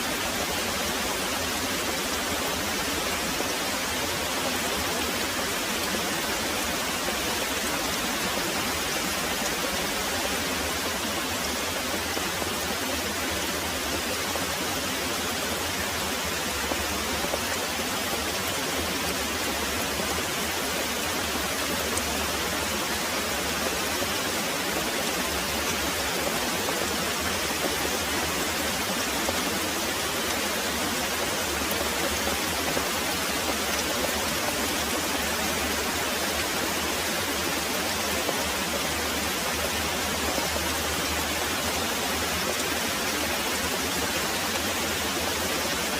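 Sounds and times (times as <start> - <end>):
heavy rain pouring: 0.0 - 45.9.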